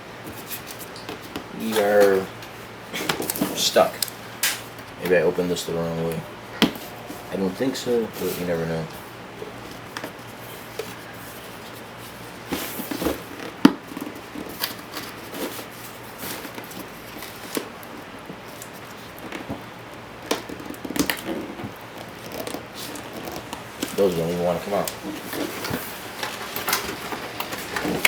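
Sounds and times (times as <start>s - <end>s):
packaging rustling: 3.1s - 4.8s, 8.0s - 28.0s.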